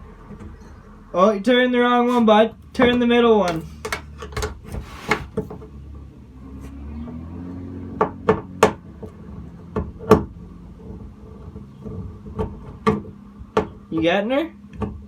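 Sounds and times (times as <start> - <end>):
hand tools knocking on metal: 2.6 - 5.5.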